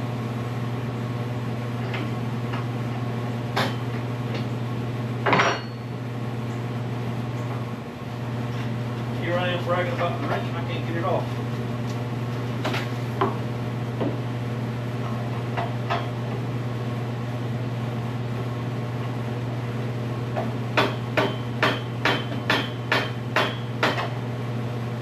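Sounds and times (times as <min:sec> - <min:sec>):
steady low hum: 0:00.0 - 0:25.0
hammer striking metal: 0:20.8 - 0:24.1.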